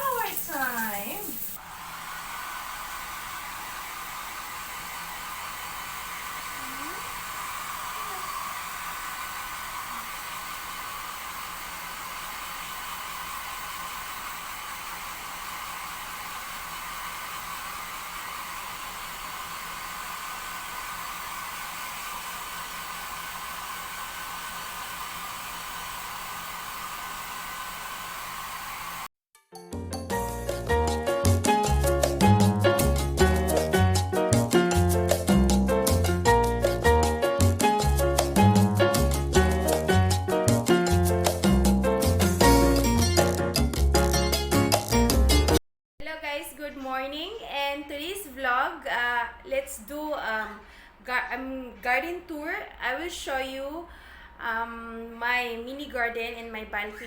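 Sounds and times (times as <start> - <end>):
shower spray hissing: 0.0 - 14.4.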